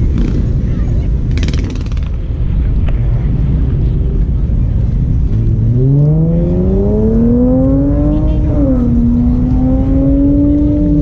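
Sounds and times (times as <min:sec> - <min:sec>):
traffic rumble: 0:00.0 - 0:11.0
car engine accelerating: 0:04.9 - 0:11.0.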